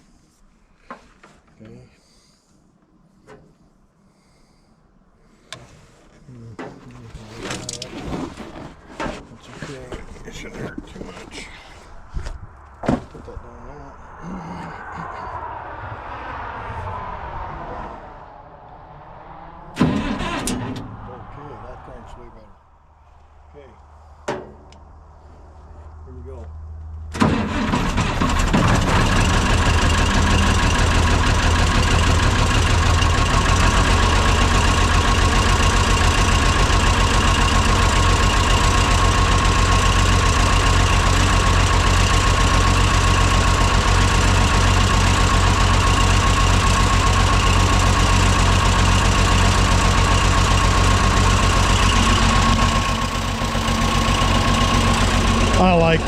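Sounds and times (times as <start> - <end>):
tractor diesel engine running: 19.8 - 21.5, 27.1 - 56.0.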